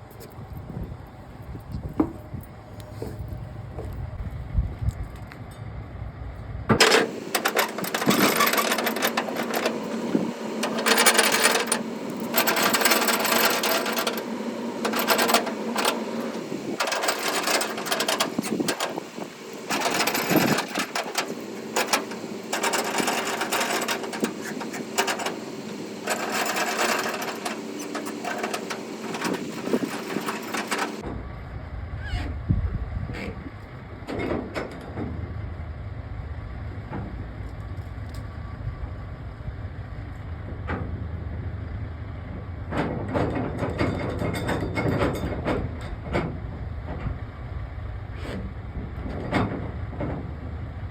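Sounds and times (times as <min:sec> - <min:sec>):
rapid mechanical clattering: 0:06.7 - 0:31.0.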